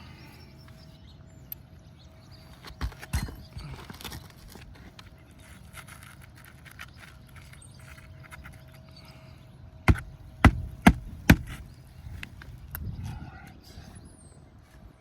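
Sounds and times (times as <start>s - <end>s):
hammer striking nail: 9.9s - 11.6s.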